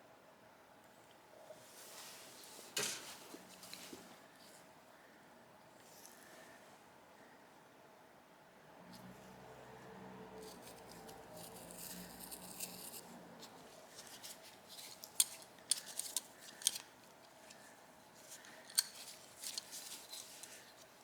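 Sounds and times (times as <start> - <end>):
metal tool scraping: 10.4 - 13.1.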